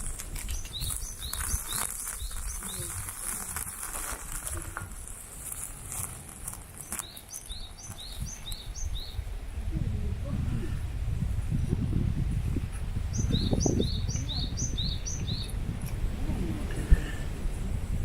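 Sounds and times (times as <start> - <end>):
bird chirping: 0.0 - 3.1, 6.8 - 9.2, 13.1 - 15.6
sharp crackles: 0.0 - 8.7.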